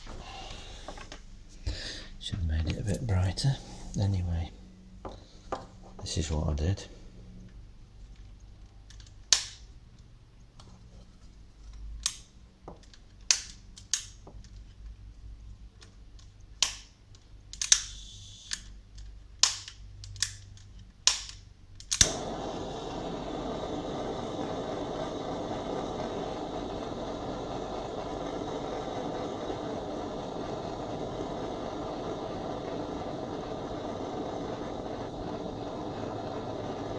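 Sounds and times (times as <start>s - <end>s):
torch flame hissing: 0.0s - 4.6s, 17.6s - 18.8s, 21.9s - 36.9s
piezo igniter clicks: 8.9s - 9.7s, 12.0s - 14.2s, 16.2s - 23.1s.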